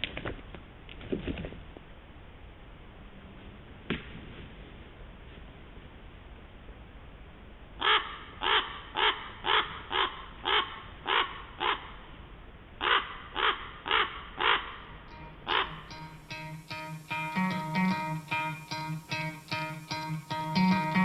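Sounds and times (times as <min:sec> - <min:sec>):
crow cawing: 0:12.8 - 0:14.7, 0:15.5 - 0:16.6.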